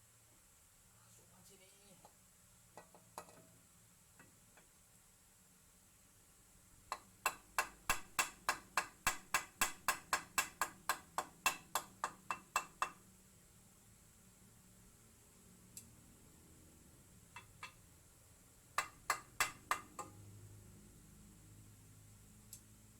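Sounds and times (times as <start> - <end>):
sharp rhythmic tapping: 6.9 - 13.0, 18.8 - 20.2.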